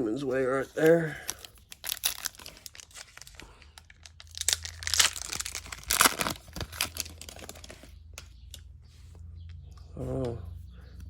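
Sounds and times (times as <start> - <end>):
plastic wrapper crinkling and tearing: 0.6 - 8.6.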